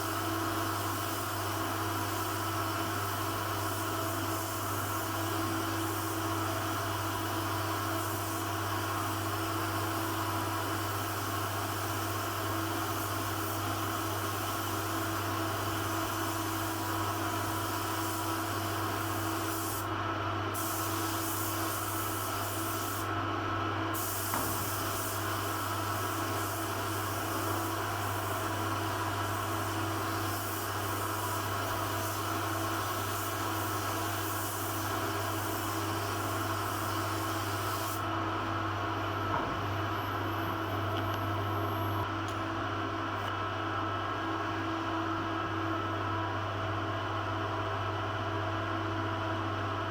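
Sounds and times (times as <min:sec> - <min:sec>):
mechanical hum: 0:00.0 - 0:49.9
paint spray gun hissing: 0:17.4 - 0:19.9, 0:20.6 - 0:23.1, 0:24.0 - 0:38.1.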